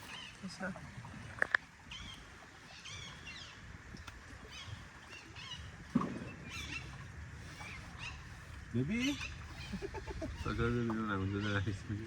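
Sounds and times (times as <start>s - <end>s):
small birds chirping: 4.4s - 12.0s.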